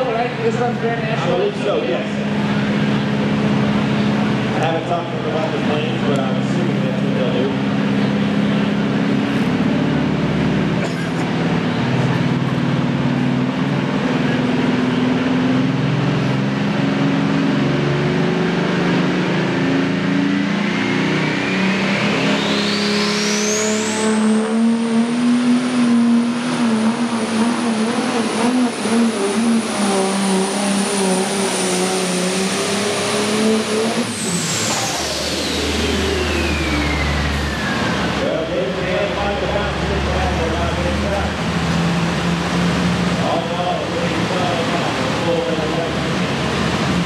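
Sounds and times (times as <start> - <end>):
diesel engine running hard: 0.0 - 47.0
turbo whine: 19.4 - 47.0.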